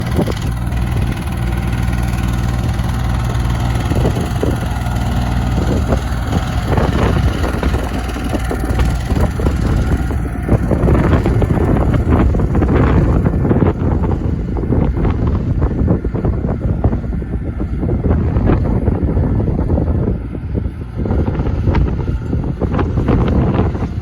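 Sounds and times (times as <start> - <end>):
rattling: 0.0 - 16.0
diesel tractor engine idling: 0.0 - 24.0.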